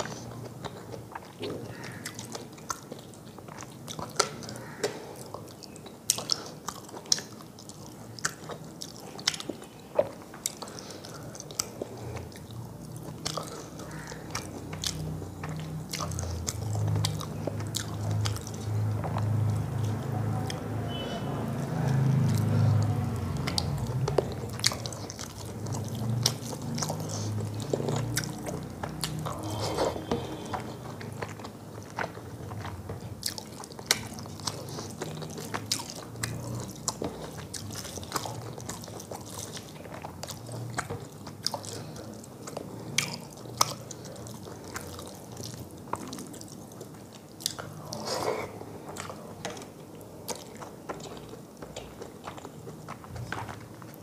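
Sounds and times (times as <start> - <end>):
wet chewing with lip smacks: 0.0 - 54.0.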